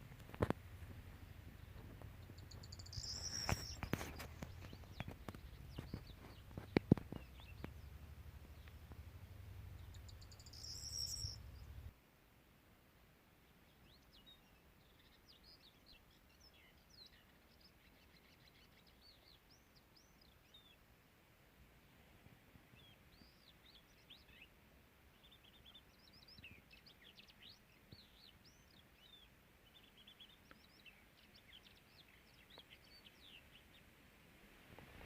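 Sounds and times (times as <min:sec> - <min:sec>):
faint bird chirps: 0:01.2 - 0:11.9, 0:22.7 - 0:33.9
scattered clicks and knocks: 0:01.8 - 0:07.8
low rumble: 0:04.5 - 0:11.9.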